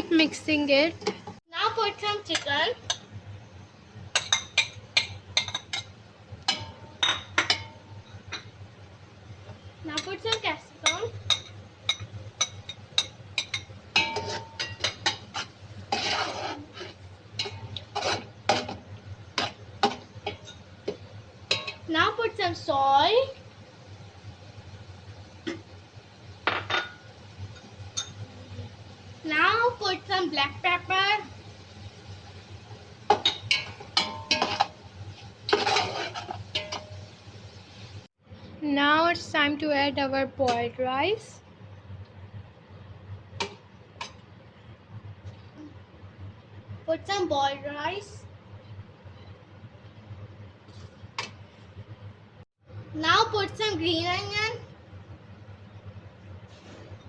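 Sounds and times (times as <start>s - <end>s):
utensil clinking on metal pan: 10.0s - 15.2s
utensil scraping a frying pan: 14.0s - 20.6s, 33.1s - 37.1s, 56.5s - 57.0s.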